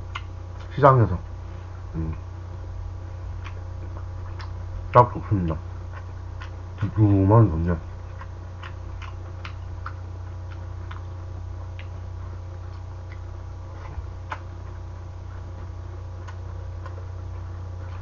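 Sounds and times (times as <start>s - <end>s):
steady low hum: 0.0s - 18.0s
wet chewing: 3.4s - 4.6s, 5.4s - 7.0s, 8.0s - 12.0s, 12.6s - 14.9s.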